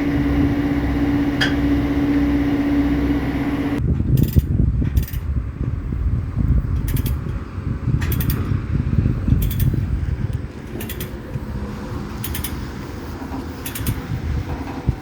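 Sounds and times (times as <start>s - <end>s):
diesel engine rumbling: 0.0s - 15.0s
sharp metallic clicks: 6.8s - 7.4s, 8.0s - 8.5s, 9.4s - 9.8s, 10.7s - 11.3s, 12.2s - 12.7s, 13.6s - 14.1s.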